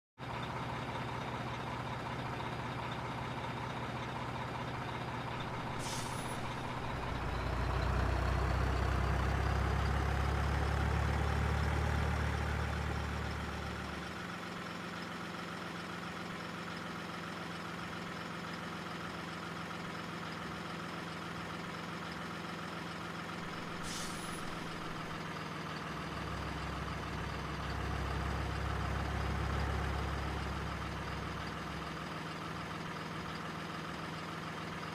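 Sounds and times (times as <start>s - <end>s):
simulated truck engine revving: 5.2s - 14.1s
short high hisses: 5.6s - 7.2s, 23.6s - 25.1s.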